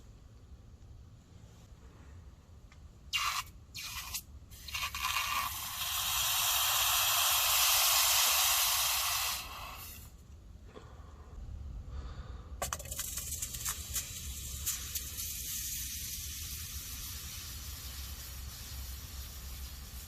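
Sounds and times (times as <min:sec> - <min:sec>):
hissing spray: 0:03.1 - 0:10.1, 0:12.8 - 0:20.0.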